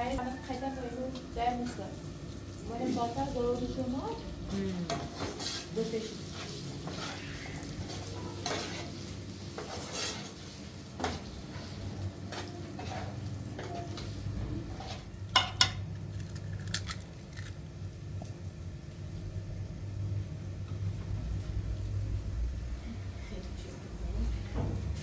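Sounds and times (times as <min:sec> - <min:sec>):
low steady hum: 0:14.4 - 0:25.0
dishes clinking: 0:14.7 - 0:15.9
utensils knocking on pots: 0:15.3 - 0:15.9.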